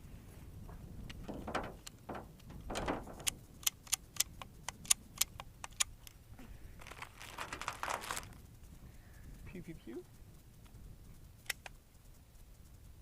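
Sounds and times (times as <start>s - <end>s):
handling rustle: 6.0s - 8.5s
light metallic clicks: 11.4s - 11.8s.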